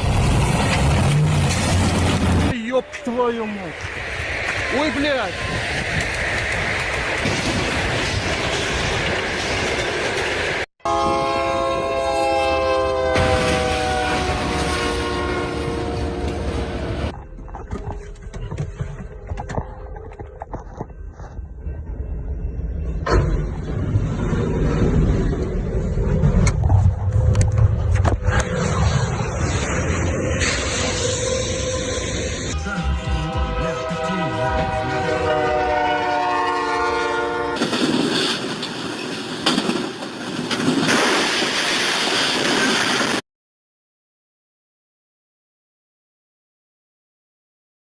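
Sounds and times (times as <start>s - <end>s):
moving train rumble: 0.0s - 43.2s
train horn: 10.8s - 16.9s, 32.5s - 37.6s.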